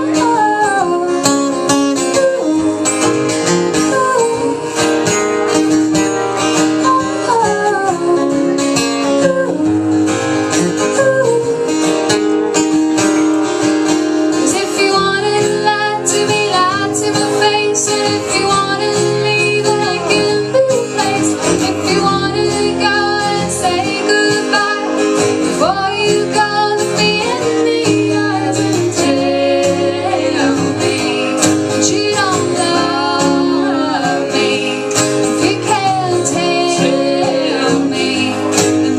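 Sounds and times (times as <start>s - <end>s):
person singing: 0.0s - 5.1s, 6.6s - 12.6s, 14.4s - 38.9s
acoustic guitar strumming: 0.0s - 38.9s.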